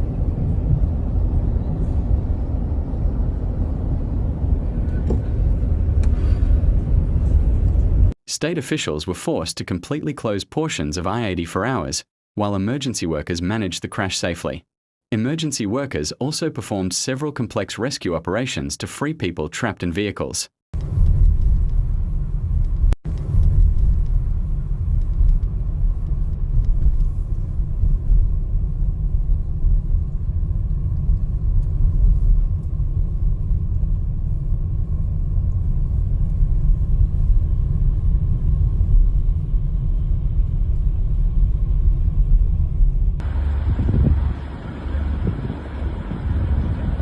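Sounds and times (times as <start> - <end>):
vehicle driving on highway rumble: 0.0 - 8.1, 20.8 - 47.0.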